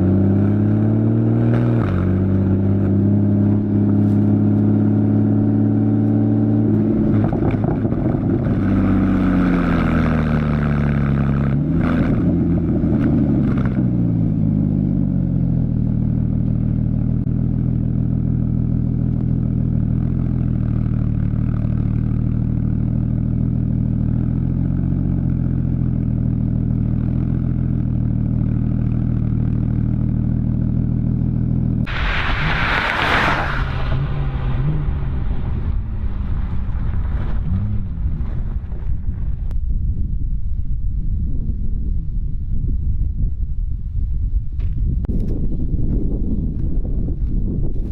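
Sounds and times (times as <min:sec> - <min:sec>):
car engine through exhaust: 0:00.0 - 0:47.9
short loud rush of noise: 0:31.9 - 0:39.5.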